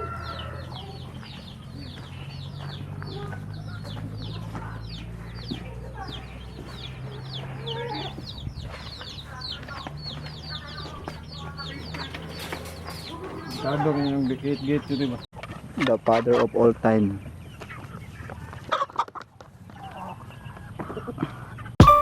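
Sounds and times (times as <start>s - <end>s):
chickens chirping: 0.0s - 15.3s.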